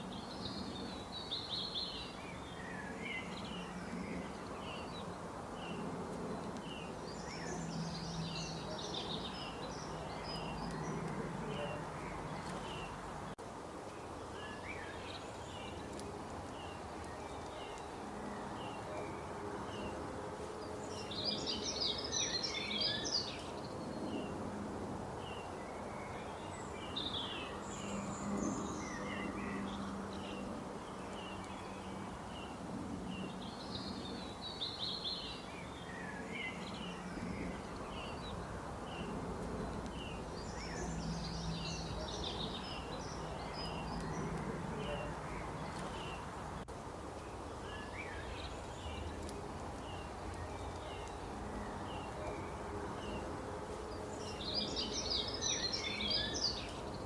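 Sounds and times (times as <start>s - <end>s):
birds chirping and singing: 54.1s - 57.0s.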